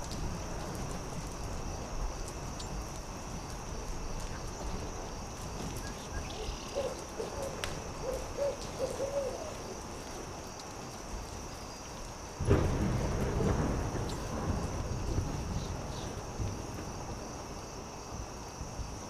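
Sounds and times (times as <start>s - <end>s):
crackling campfire: 0.0s - 19.0s
owl hooting: 6.1s - 9.6s.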